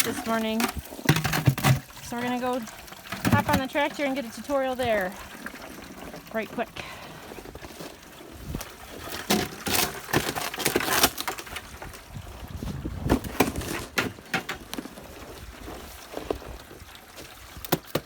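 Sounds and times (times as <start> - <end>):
footsteps crunching through snow: 14.6 - 16.8.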